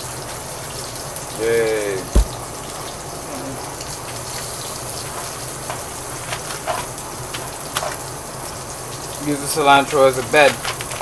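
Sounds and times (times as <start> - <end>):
sharp knock: 2.2 - 2.5.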